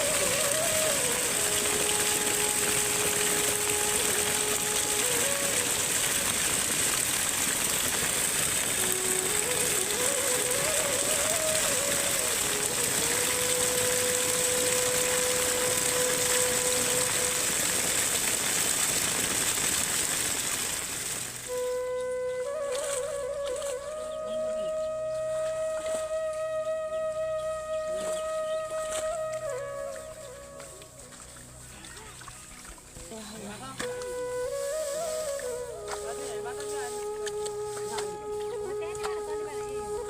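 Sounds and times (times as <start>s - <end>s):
slow melody of held notes: 0.0s - 18.5s, 21.3s - 40.0s
rushing water: 0.0s - 40.0s.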